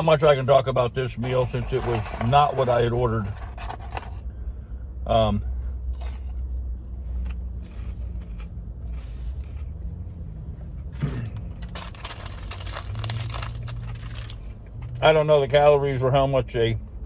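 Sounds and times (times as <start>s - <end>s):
rustling: 11.4s - 14.5s.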